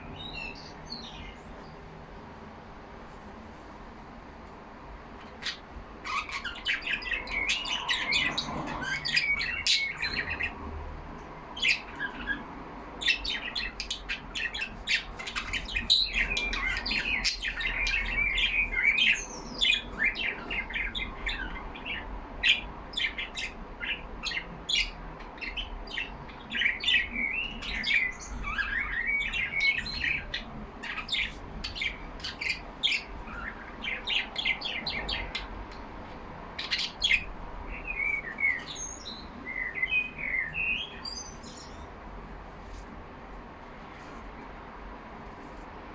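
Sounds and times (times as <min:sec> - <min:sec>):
budgerigars chirping: 0:05.2 - 0:10.6, 0:11.5 - 0:35.5, 0:36.6 - 0:41.9.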